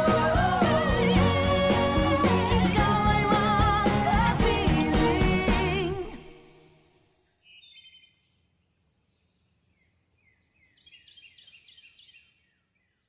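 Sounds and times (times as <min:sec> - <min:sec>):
faint bird chirps: 0:07.4 - 0:13.0.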